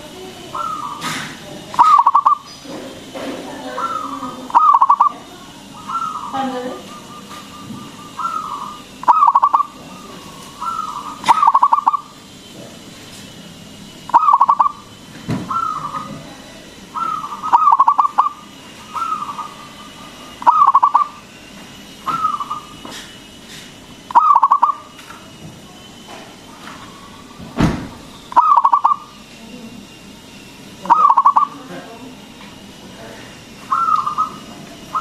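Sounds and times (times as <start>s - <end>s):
dove cooing with rattling trill: 0.5s - 12.4s, 13.9s - 22.9s, 24.0s - 25.0s, 26.9s - 29.2s, 30.8s - 31.6s, 33.6s - 35.0s.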